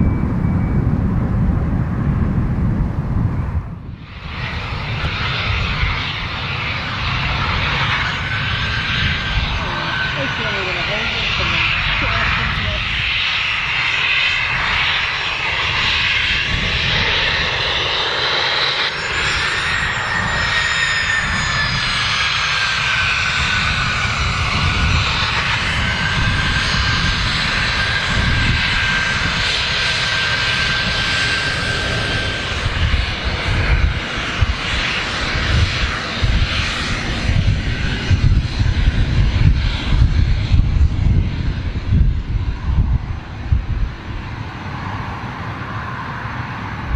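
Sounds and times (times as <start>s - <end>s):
small aircraft engine running: 0.0s - 46.9s.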